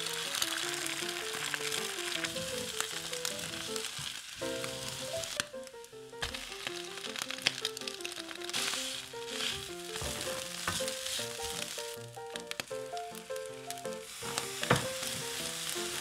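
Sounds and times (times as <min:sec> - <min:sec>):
eggs sizzling in a pan: 0:00.0 - 0:16.0.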